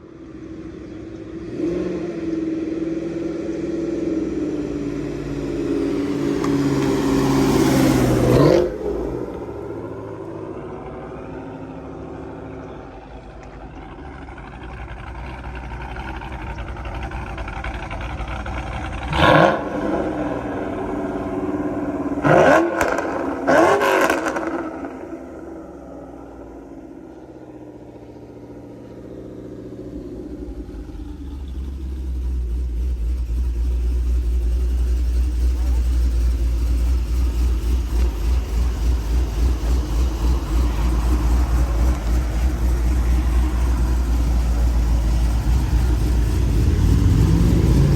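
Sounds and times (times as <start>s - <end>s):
pickup truck engine revving: 14.5s - 27.7s, 30.4s - 47.9s.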